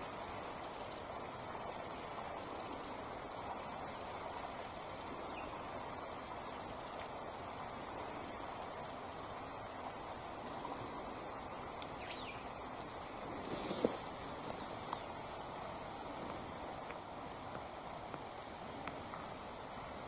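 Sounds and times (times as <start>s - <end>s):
creek water rushing: 0.0s - 20.0s
faint ticks: 0.0s - 20.0s.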